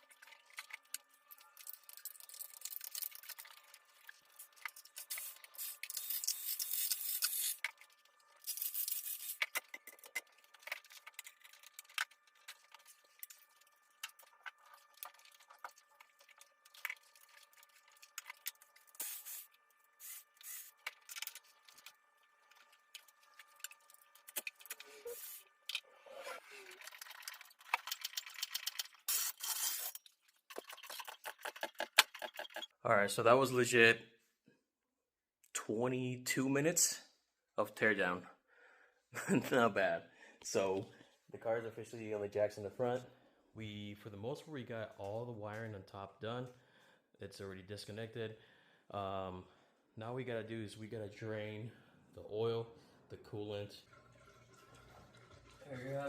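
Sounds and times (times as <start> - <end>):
hand tools clicking and rattling: 27.1 - 32.7.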